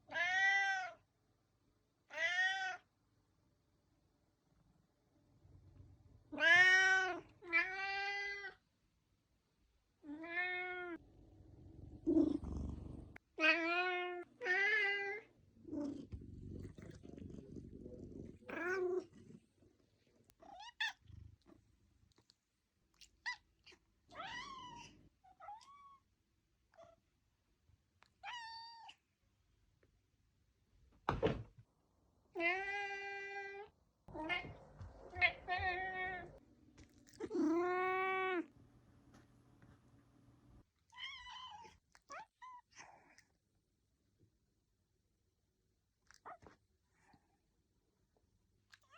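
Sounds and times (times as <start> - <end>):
cat meowing: 0.0 - 1.0, 2.1 - 2.9
thump: 31.0 - 31.6.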